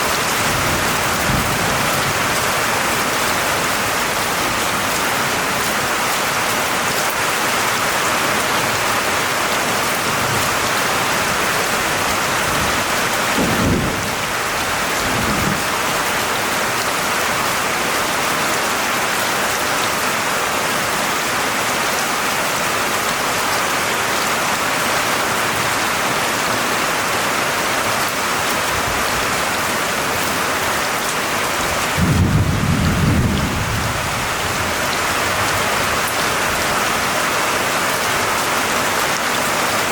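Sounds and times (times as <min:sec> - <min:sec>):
heavy rain falling: 0:00.0 - 0:39.9
thunder rumbling: 0:00.2 - 0:03.7, 0:12.0 - 0:15.7, 0:31.6 - 0:36.0.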